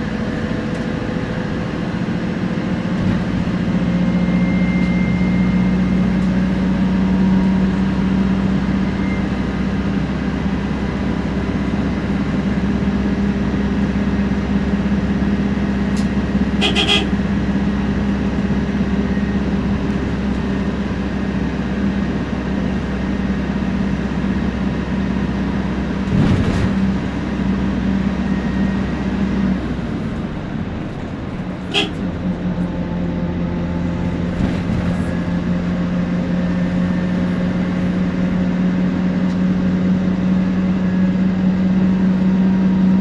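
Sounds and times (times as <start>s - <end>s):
bus engine drone: 0.0s - 43.0s
short beeping horn toot: 16.6s - 17.2s, 31.7s - 32.0s.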